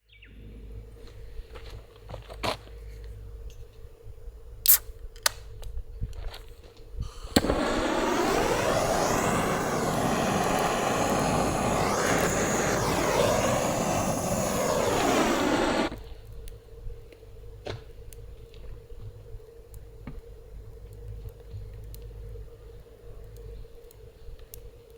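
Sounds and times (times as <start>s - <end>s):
loud rushing hiss: 7.0s - 16.0s
wood fire crackling: 7.0s - 16.0s.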